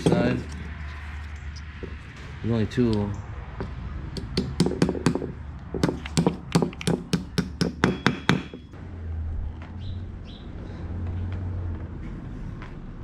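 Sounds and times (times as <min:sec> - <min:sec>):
hammer tapping metal: 0:04.2 - 0:08.8.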